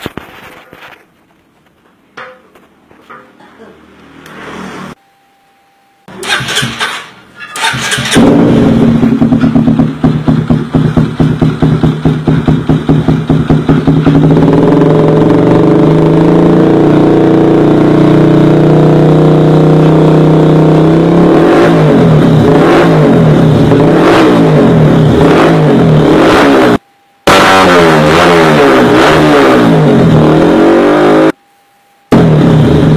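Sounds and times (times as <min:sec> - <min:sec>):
motorcycle engine idling and revving: 0:06.2 - 0:31.4, 0:32.1 - 0:32.9.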